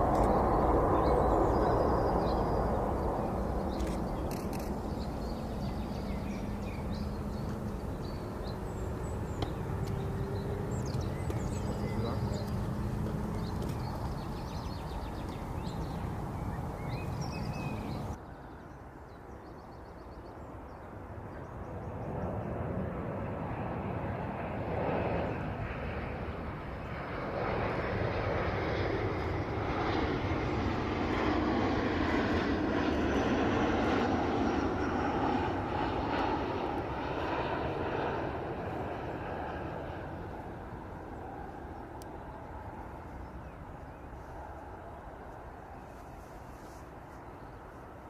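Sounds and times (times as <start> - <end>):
jet airliner rumble overhead: 0.0 - 48.0.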